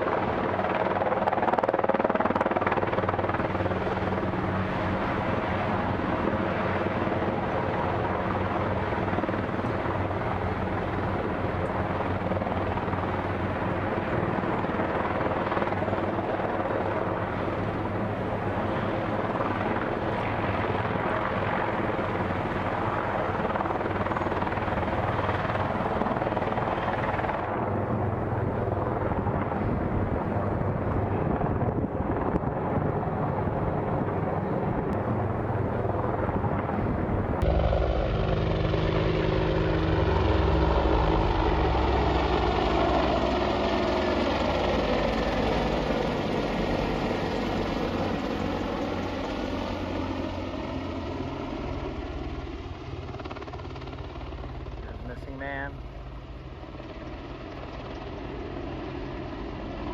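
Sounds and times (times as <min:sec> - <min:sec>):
helicopter rotor and engine noise: 0:00.0 - 0:59.9
low engine hum: 0:15.6 - 0:59.9.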